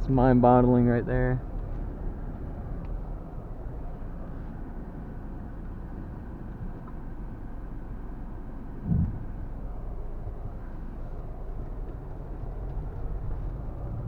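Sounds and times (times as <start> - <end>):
road and engine rumble in cab: 0.0 - 14.0
low thump: 8.8 - 9.6.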